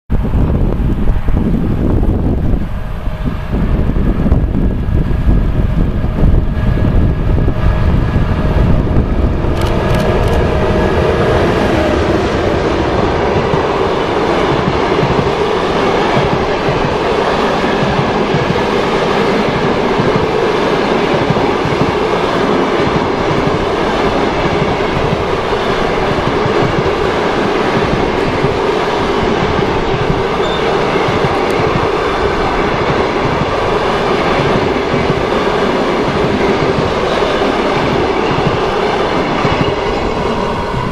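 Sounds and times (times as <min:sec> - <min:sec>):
wind: 0:00.0 - 0:40.9
train wheels rumbling on rails: 0:00.1 - 0:40.9
wheels clickety-clack: 0:11.9 - 0:40.1.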